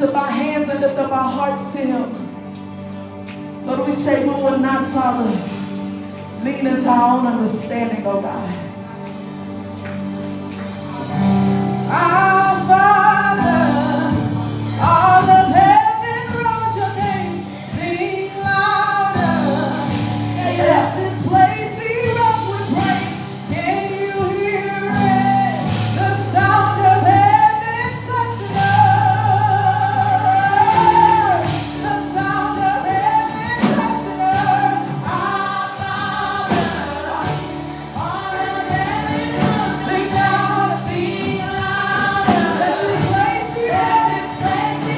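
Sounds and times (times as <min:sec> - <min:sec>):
sustained keyboard chords: 0:00.0 - 0:44.9
lead singer with vibrato: 0:11.1 - 0:44.9
choir singing: 0:19.4 - 0:21.5, 0:34.3 - 0:44.9.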